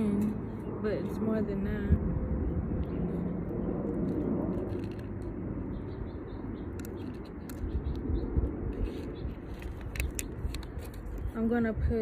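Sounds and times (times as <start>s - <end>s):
wind rumbling on microphone: 0.0s - 12.0s
small birds chirping: 2.4s - 12.0s.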